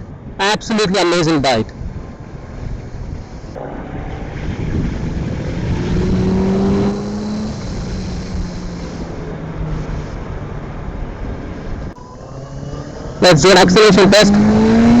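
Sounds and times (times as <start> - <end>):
motorcycle engine running: 2.8 - 10.2.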